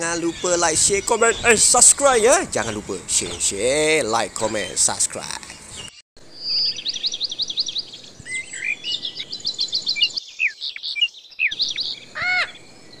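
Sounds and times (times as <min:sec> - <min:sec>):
birds chirping and trilling: 0:00.0 - 0:13.0
harsh bird call: 0:10.4 - 0:13.0.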